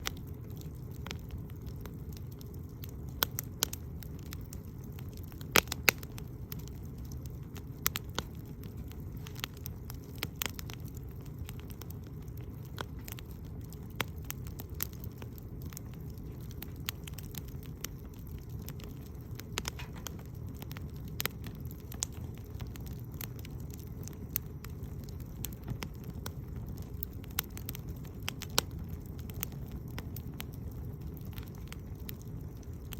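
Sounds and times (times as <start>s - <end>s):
campfire crackling and popping: 0.0s - 32.9s
low fire rumble: 0.0s - 32.9s.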